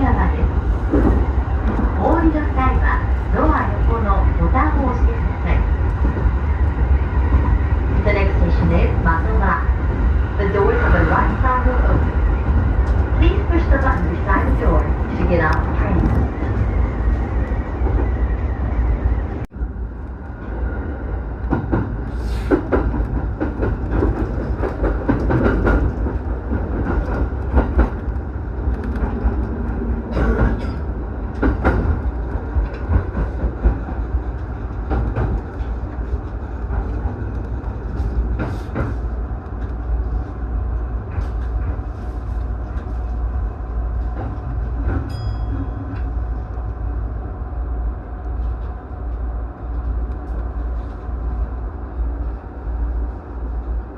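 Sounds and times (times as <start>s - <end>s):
train rumble: 0.0s - 53.9s.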